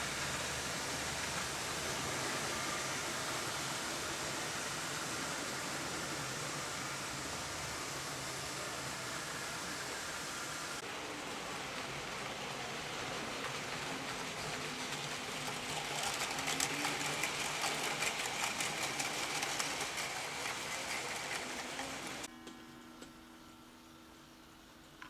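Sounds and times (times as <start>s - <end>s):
model train running on track: 0.0s - 22.3s
wheel clicks: 14.4s - 22.3s.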